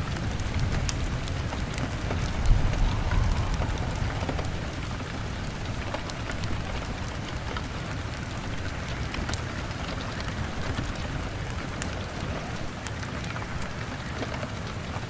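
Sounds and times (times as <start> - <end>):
rain on window: 0.0 - 15.0
log fire crackling: 0.4 - 7.4
low rumble: 1.2 - 7.0.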